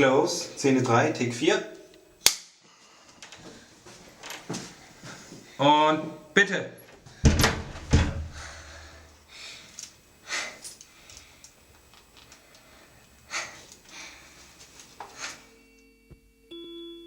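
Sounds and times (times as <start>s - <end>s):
person breathing heavily: 2.6s - 3.9s, 4.6s - 5.6s, 8.2s - 11.6s, 12.4s - 15.5s.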